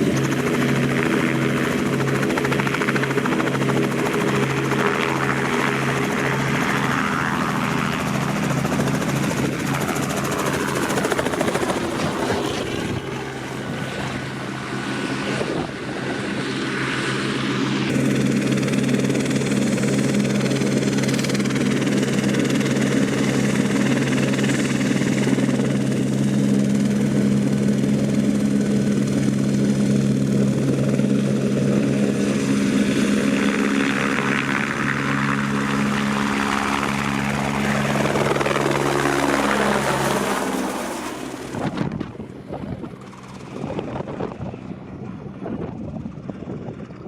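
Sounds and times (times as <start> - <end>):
helicopter droning: 0.0 - 47.0.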